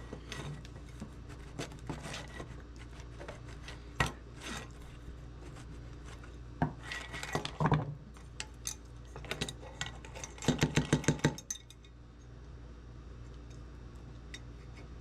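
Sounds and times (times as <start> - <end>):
old lantern clinking and rattling: 8.2 - 12.3.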